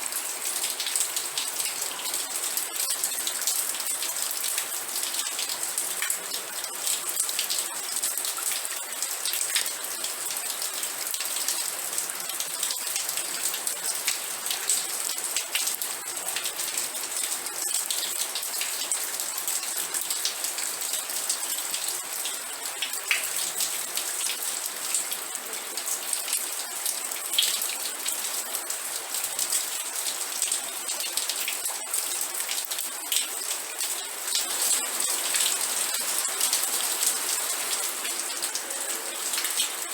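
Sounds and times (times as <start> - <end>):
raindrops ticking on surface: 0.1 - 39.9
rain hissing: 34.1 - 39.9.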